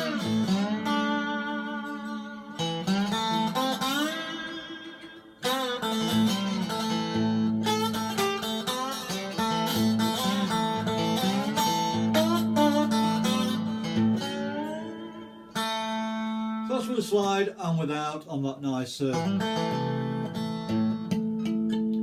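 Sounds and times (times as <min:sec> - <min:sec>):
slide guitar notes over drone: 0:00.0 - 0:16.7.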